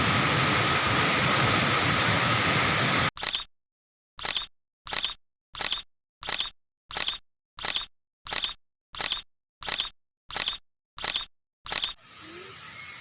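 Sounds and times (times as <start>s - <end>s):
sharp noisy clicks: 3.1s - 3.5s, 4.2s - 12.0s.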